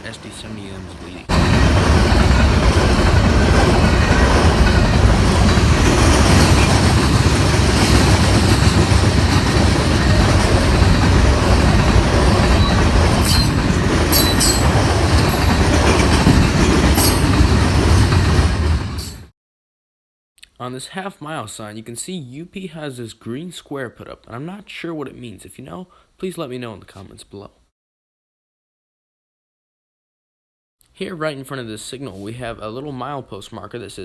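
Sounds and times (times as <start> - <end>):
freight train rumbling past: 0.0 - 19.3
train wheel squeals: 1.3 - 19.3.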